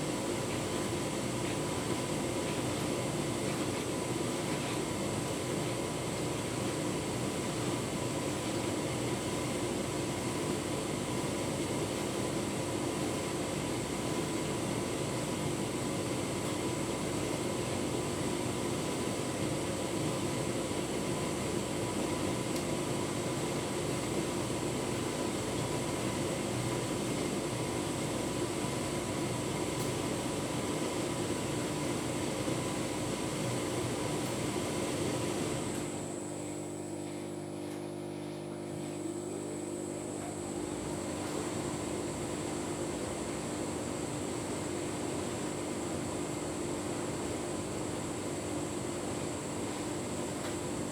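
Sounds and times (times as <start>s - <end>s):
tumble dryer running: 23.2s - 50.9s.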